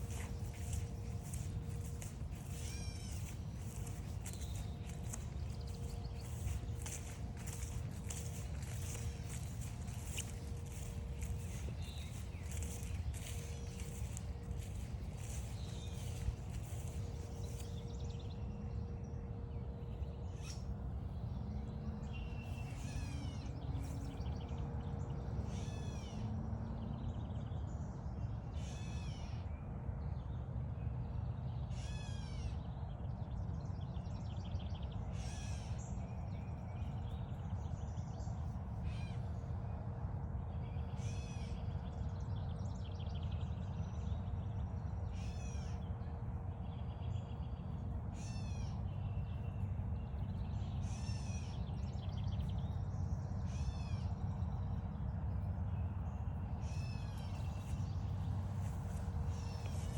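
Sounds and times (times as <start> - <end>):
steady low rumble: 0.0 - 25.1, 43.6 - 59.9.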